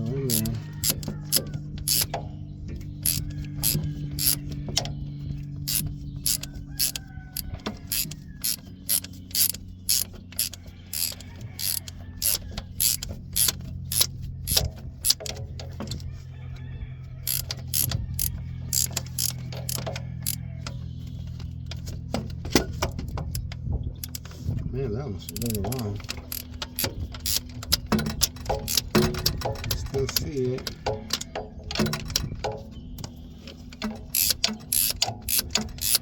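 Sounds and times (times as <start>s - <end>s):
ratchet wrench clicking: 0.0s - 2.2s, 3.0s - 4.5s, 5.6s - 15.3s, 17.2s - 20.4s, 24.0s - 24.3s, 25.3s - 30.2s, 33.8s - 36.0s.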